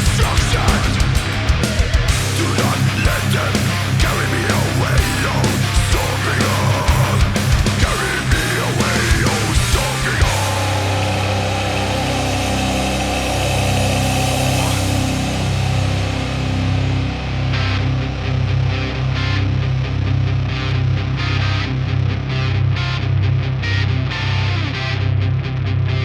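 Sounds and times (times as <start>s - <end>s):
distorted metal guitars: 0.0s - 26.0s.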